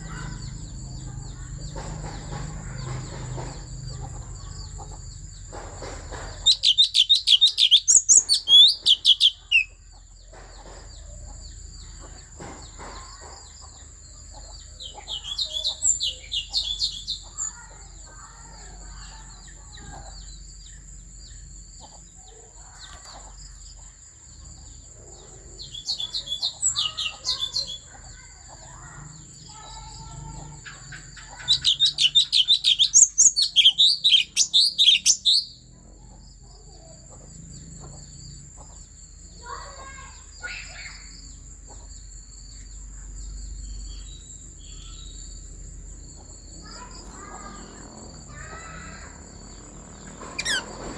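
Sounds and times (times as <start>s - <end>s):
songbird singing high notes: 6.4s - 9.8s.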